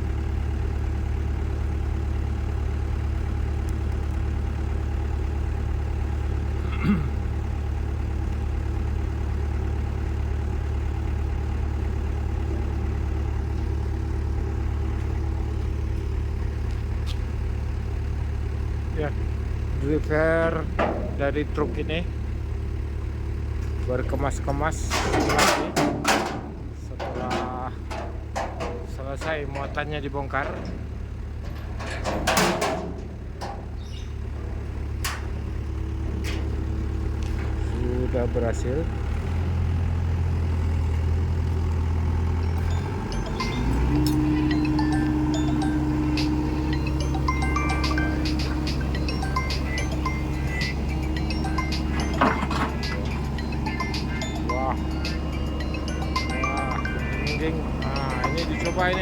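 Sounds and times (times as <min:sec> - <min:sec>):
diesel engine idling: 0:00.0 - 0:59.0
metal knocks and clanks: 0:20.5 - 0:21.8, 0:24.7 - 0:36.7, 0:44.6 - 0:59.0.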